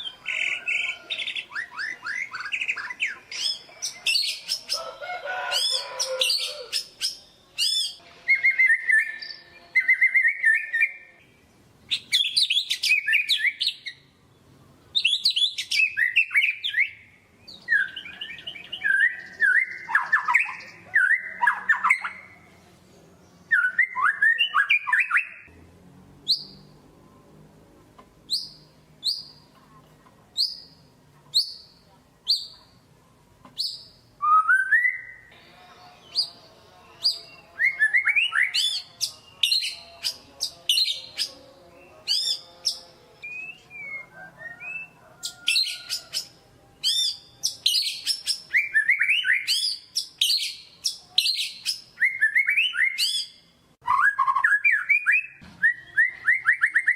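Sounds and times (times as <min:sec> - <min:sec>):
songbird singing trills: 0:00.0 - 0:04.8, 0:05.5 - 0:22.4, 0:26.2 - 0:26.8, 0:28.3 - 0:29.6, 0:30.4 - 0:32.8, 0:33.5 - 0:56.9.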